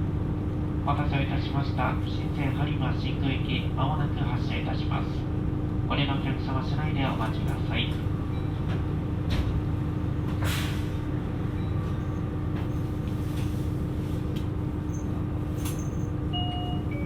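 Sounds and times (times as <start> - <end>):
diesel railcar engine idling: 0.0 - 17.0
air brake hisses: 10.4 - 11.0.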